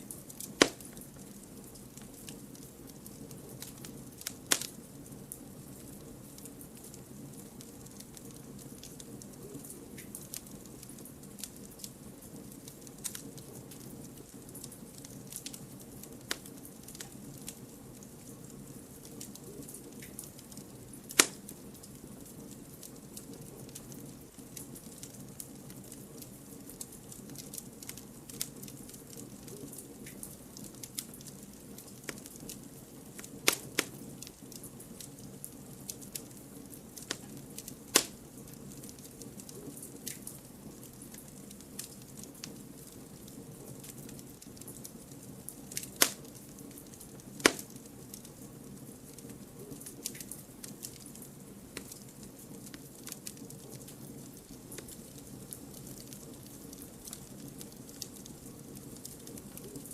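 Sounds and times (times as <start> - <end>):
campfire crackling and popping: 0.0 - 59.9
low hiss of flames: 0.0 - 59.9.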